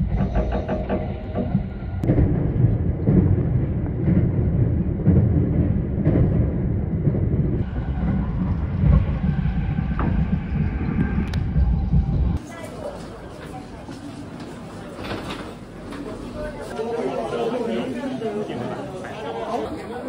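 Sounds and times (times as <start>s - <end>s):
low thumps of train: 0.0s - 12.4s
train wheels rumbling on rails: 0.0s - 16.7s.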